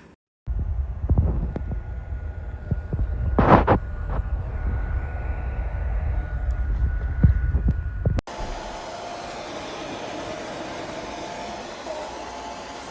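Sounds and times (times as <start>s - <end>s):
air buffeting microphone: 0.5s - 8.8s
hair dryer blowing air: 0.5s - 12.9s
thumps: 0.9s - 8.8s.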